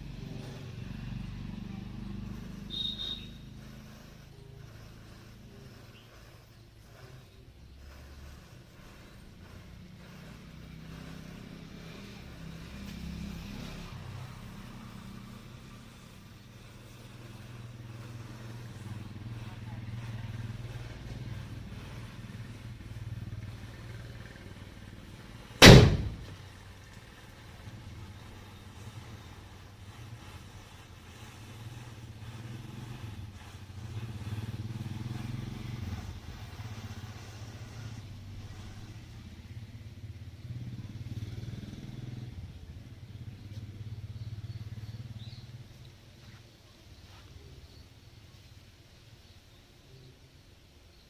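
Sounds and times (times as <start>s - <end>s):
low engine pulsing: 0.0s - 46.0s
firecracker bang: 25.5s - 26.4s.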